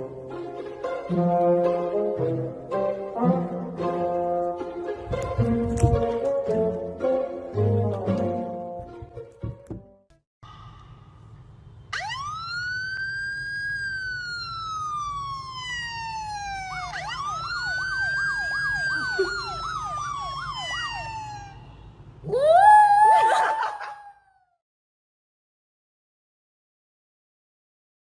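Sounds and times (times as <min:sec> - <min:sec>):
siren wailing and yelping: 0:11.9 - 0:24.6.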